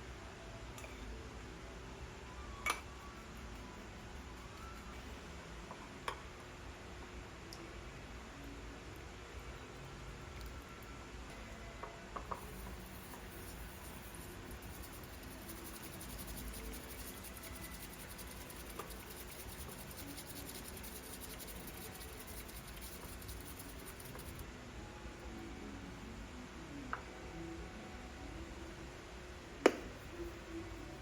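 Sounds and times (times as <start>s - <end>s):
whisk scratching in a bowl: 12.4s - 24.4s.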